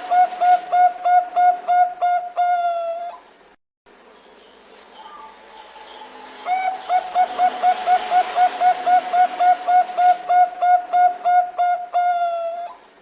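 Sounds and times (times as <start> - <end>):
dove cooing: 0.0 - 3.2, 6.0 - 12.8.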